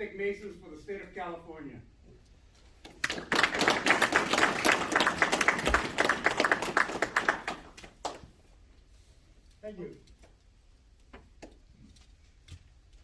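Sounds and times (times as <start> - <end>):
small group applauding: 2.8 - 8.4.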